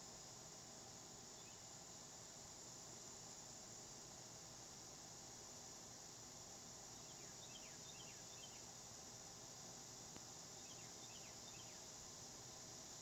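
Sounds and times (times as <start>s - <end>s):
steady high hiss: 0.0s - 13.0s
small bird chirping: 7.0s - 8.7s, 10.6s - 11.9s.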